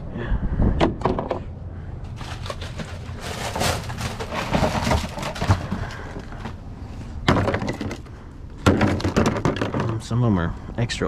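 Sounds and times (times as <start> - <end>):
rummaging through metal parts: 2.0 - 6.6, 7.2 - 10.2
small knocks: 7.2 - 10.1.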